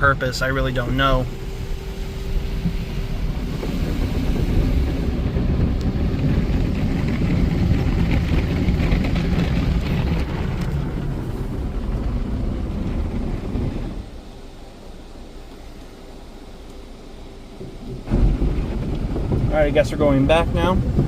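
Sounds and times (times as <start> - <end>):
car wash brushes rubbing: 1.0 - 14.1.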